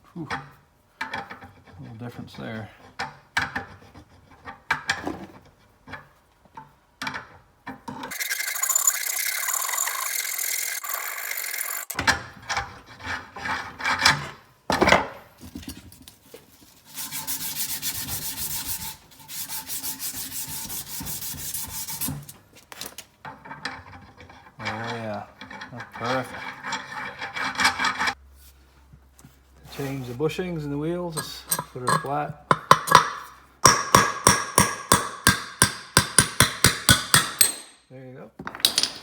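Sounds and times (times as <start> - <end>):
filing and sanding metal: 16.7 - 22.4, 25.9 - 28.2
clicks of parts and tools: 31.2 - 33.3.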